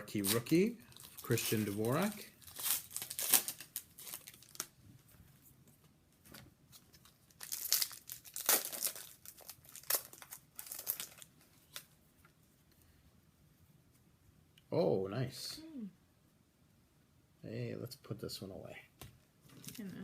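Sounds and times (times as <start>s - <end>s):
foil wrapper crinkling and tearing: 0.1s - 4.8s, 6.9s - 11.9s.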